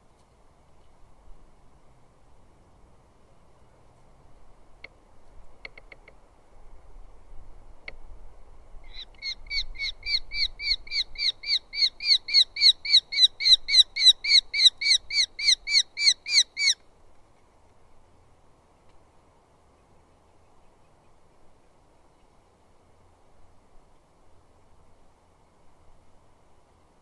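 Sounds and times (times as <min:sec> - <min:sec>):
falcon sharp repeated calls: 0:08.9 - 0:16.8.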